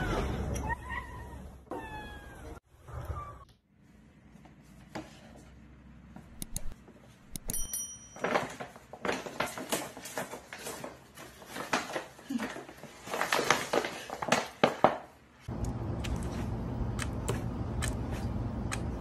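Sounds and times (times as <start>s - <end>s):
paper bag rustling: 8.2s - 15.1s.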